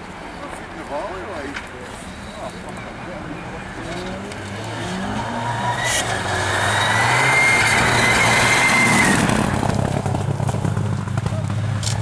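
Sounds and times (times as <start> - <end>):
rally car engine passing at speed: 2.9 - 11.9.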